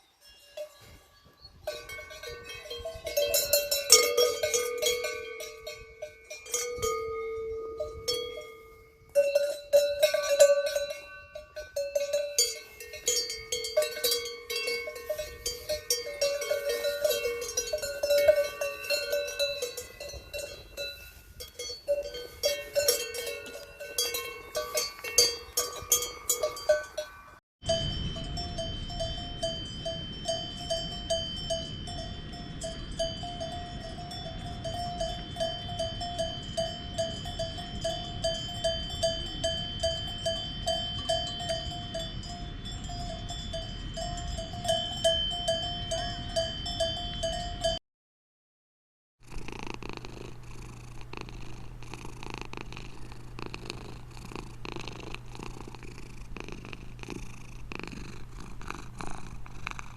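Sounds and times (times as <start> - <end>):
cowbells clanking: 0.0 - 47.8.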